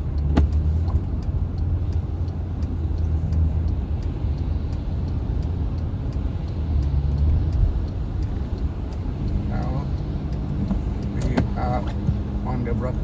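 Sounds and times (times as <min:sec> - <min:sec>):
car engine and tyre rumble: 0:00.0 - 0:13.0
sharp tick: 0:00.0 - 0:13.0.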